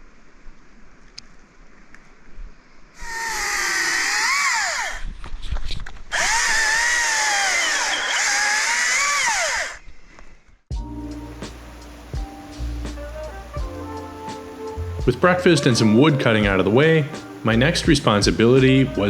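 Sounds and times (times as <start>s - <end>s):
electric saw cutting wood: 3.0s - 5.0s, 6.1s - 9.8s
background music: 10.7s - 19.0s.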